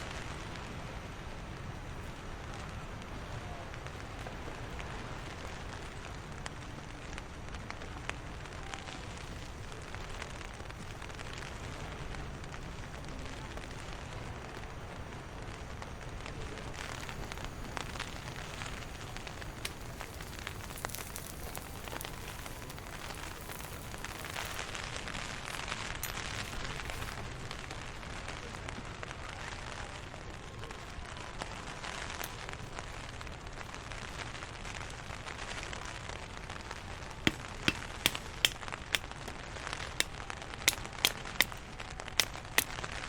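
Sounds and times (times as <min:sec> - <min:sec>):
heavy rain falling: 0:00.0 - 0:25.6
sharp raindrop ticks: 0:16.3 - 0:24.8, 0:37.3 - 0:39.1, 0:40.0 - 0:42.8.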